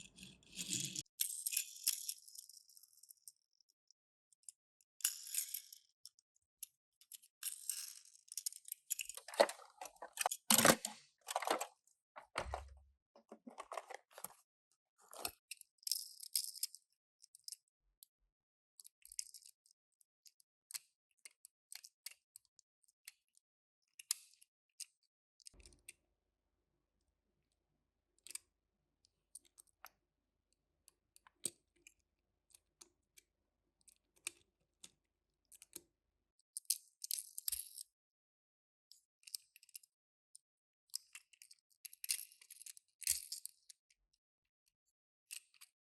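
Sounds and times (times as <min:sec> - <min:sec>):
packaging rustling and crinkling: 0:09.2 - 0:14.4
small plastic clicks and taps: 0:18.8 - 0:26.0, 0:31.1 - 0:35.9, 0:38.9 - 0:43.9, 0:44.6 - 0:45.8.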